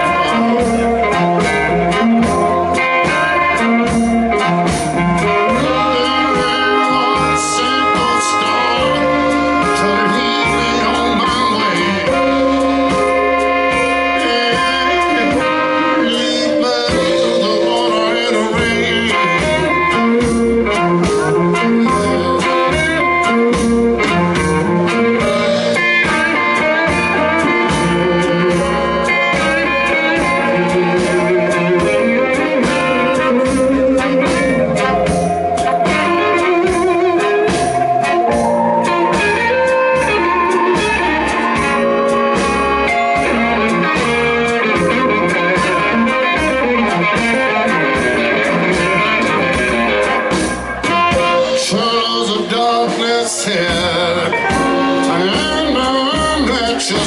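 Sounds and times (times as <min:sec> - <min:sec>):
blues-rock band playing: 0:00.0 - 0:57.0
steady drum beat: 0:00.0 - 0:57.0.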